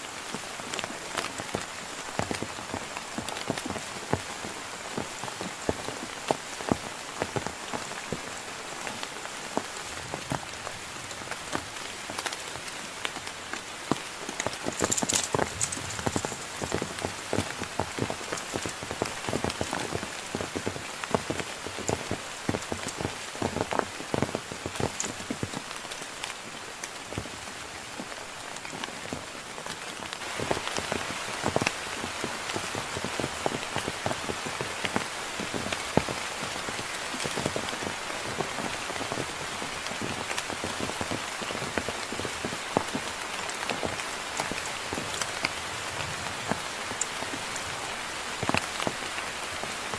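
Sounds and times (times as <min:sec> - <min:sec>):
heavy rain falling: 0:00.0 - 0:49.9
raindrops striking close by: 0:00.0 - 0:49.9.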